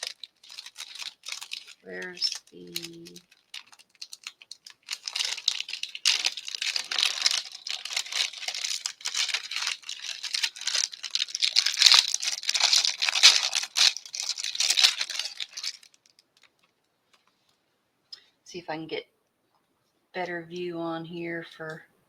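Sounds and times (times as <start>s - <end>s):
plastic packaging crinkling: 0.0s - 17.5s.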